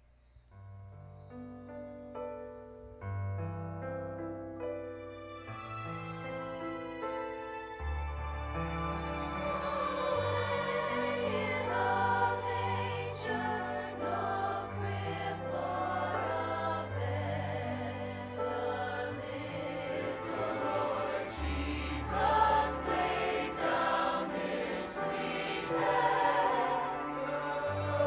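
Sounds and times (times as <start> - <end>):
choir singing with accompaniment: 9.1 - 28.0.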